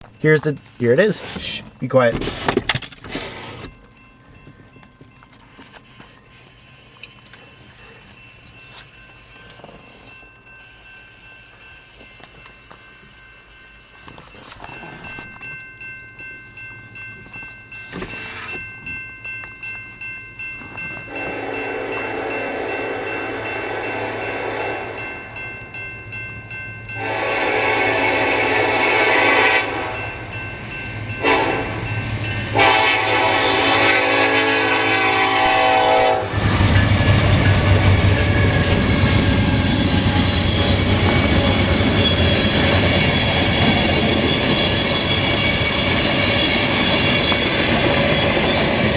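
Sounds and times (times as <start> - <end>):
crossing bell ringing: 0.0 - 2.1, 3.3 - 48.9
train wheels rolling: 0.0 - 48.9
diesel locomotive engine running: 20.6 - 48.9
train horn blasts: 21.1 - 25.0, 27.0 - 30.2, 31.2 - 36.6.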